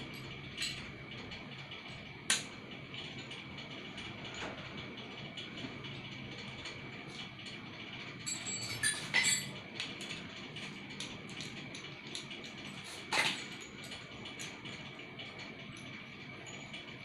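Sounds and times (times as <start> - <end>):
metal parts clinking: 8.2 - 10.2.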